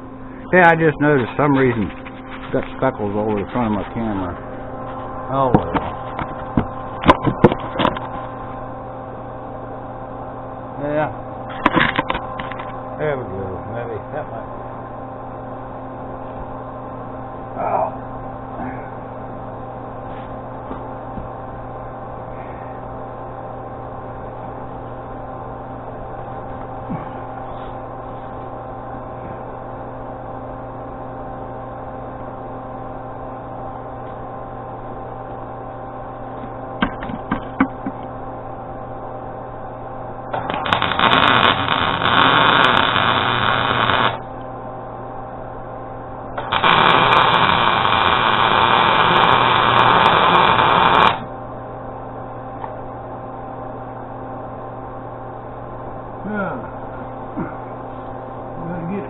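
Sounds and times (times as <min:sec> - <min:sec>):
welder humming: 0:00.0 - 0:31.9, 0:32.6 - 0:59.0
welding arc crackling: 0:40.3 - 0:44.3, 0:46.4 - 0:51.3.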